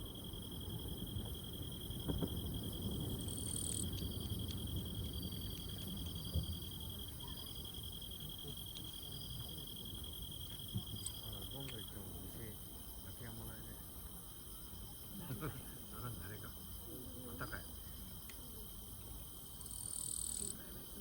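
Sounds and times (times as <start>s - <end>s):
low background rumble: 0.0s - 11.4s.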